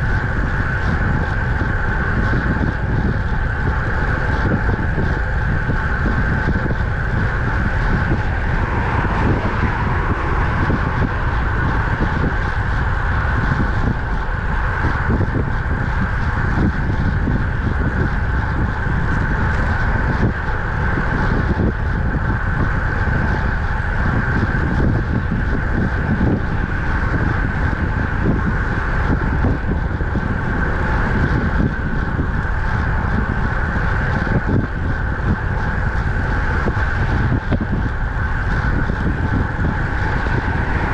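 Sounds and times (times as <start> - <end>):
steady high hum: 0.0 - 40.9
tyre and road noise: 0.0 - 40.9
wind rushing over microphone: 0.0 - 40.9.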